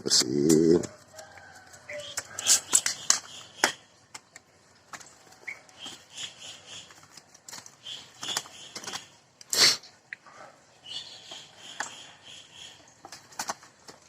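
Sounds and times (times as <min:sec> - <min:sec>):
bird cage clicks and scrapes: 0:00.4 - 0:09.2, 0:13.0 - 0:14.0.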